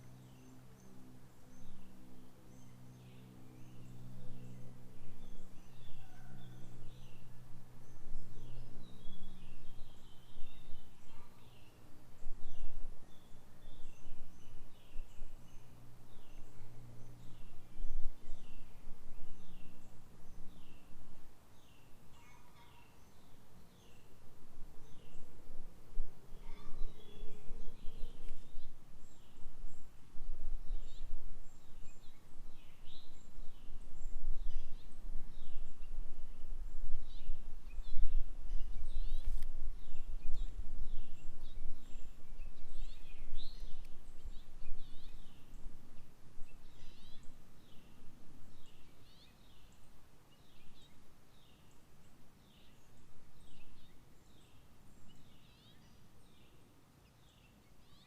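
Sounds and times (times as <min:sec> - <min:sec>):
songbird chirping: 0:00.0 - 0:58.0.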